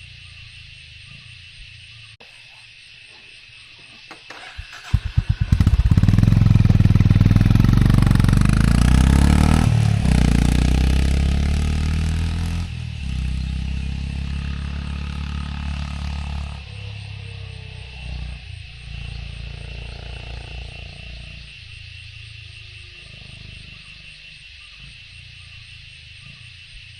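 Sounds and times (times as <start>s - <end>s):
motorcycle engine running: 4.3s - 20.5s.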